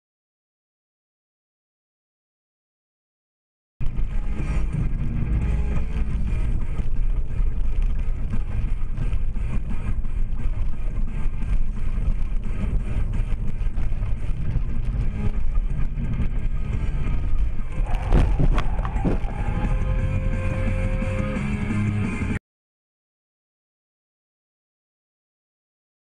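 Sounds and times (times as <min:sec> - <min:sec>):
vehicle engine and road noise: 0:03.8 - 0:22.4.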